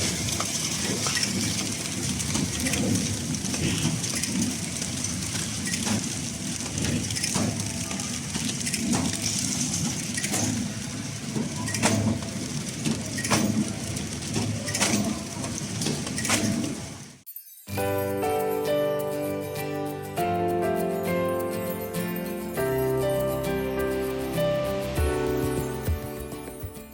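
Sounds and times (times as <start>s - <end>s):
packaging machine running: 0.0s - 17.2s.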